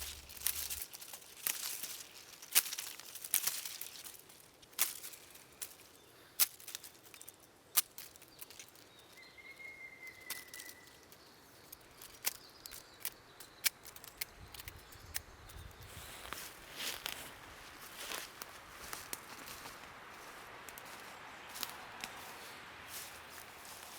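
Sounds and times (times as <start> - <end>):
sharp crackles and snaps: 0.0 - 9.3, 10.1 - 22.3
faint thin whistle: 9.2 - 11.0.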